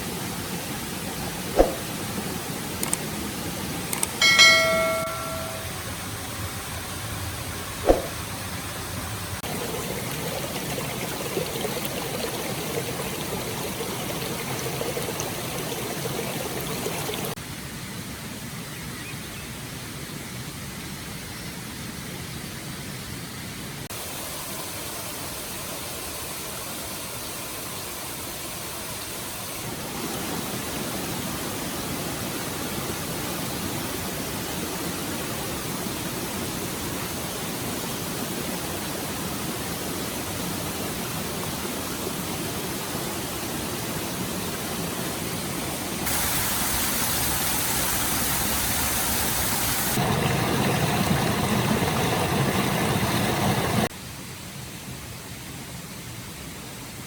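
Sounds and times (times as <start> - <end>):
stream water rushing: 0.0 - 5.7, 7.8 - 17.4, 35.9 - 53.9.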